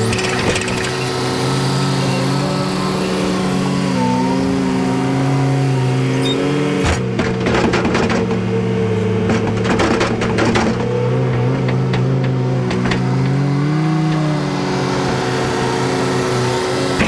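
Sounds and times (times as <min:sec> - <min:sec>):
machine knocking and rattling: 0:00.0 - 0:01.2, 0:06.8 - 0:08.6, 0:09.2 - 0:14.3
farm machine engine running: 0:00.0 - 0:17.0.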